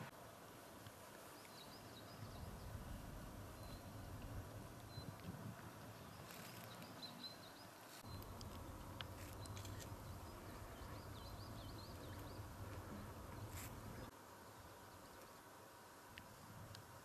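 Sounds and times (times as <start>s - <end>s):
small birds chirping: 0.7s - 15.5s
wind rumble on microphone: 2.2s - 6.2s.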